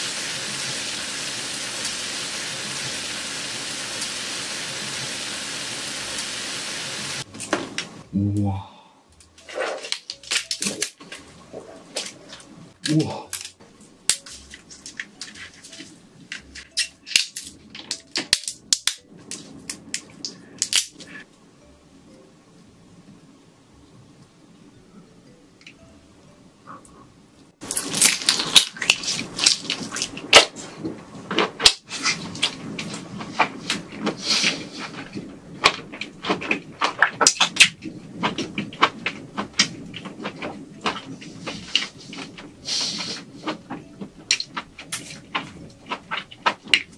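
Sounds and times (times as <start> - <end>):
shrimp shells cracking: 27.6 - 30.5
chewing shrimp: 44.5 - 46.9.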